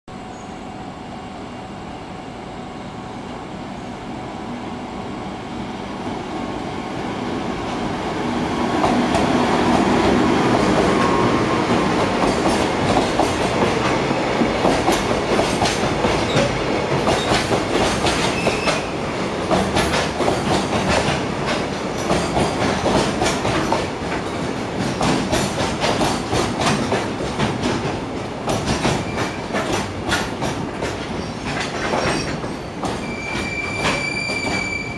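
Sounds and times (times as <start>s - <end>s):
freight train rumble: 0.1s - 34.9s
wheels clacking over rail joints: 11.7s - 34.6s.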